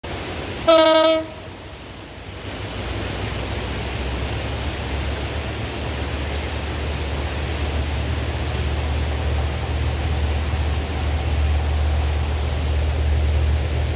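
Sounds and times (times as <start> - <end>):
approaching train rumble and hiss: 0.0 - 13.9
locomotive horn blast: 0.6 - 1.6.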